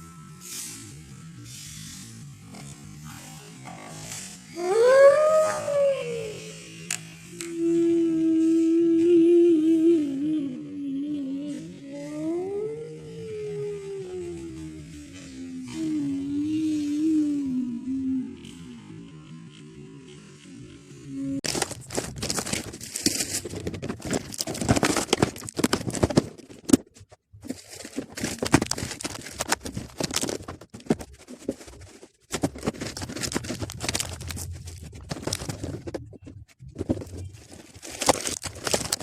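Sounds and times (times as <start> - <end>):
food packets rustling: 21.4 - 39.0.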